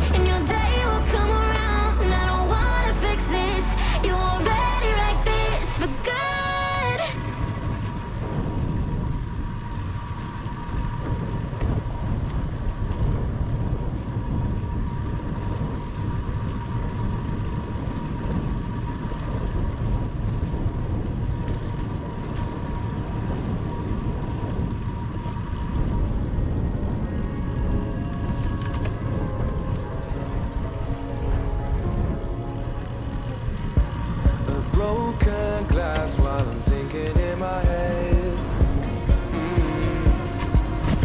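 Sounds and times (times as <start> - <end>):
bicycle tyre road noise: 0.0 - 41.0
wind rushing over microphone: 0.0 - 41.0
faint high tone: 26.7 - 41.0.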